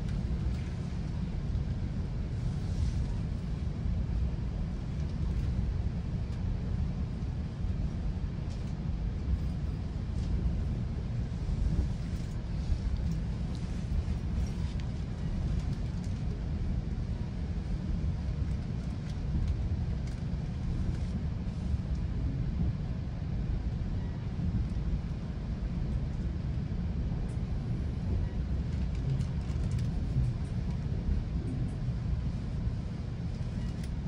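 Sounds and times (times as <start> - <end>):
train rumbling on track: 0.0 - 34.0
light clicks and rattles: 28.6 - 30.9.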